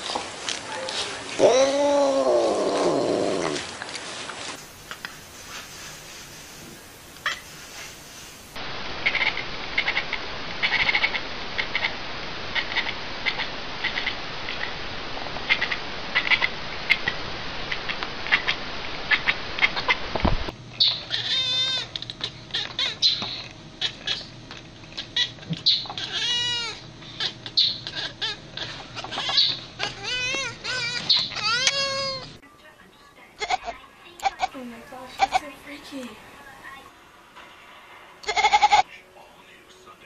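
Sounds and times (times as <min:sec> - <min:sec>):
hissy background: 0:00.0 - 0:10.6, 0:31.7 - 0:40.0.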